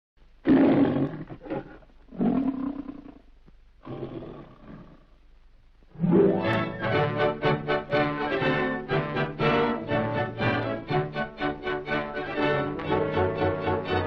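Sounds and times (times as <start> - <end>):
lion roaring: 0.4 - 3.2, 3.8 - 5.1
orchestral music with strings: 6.0 - 14.0.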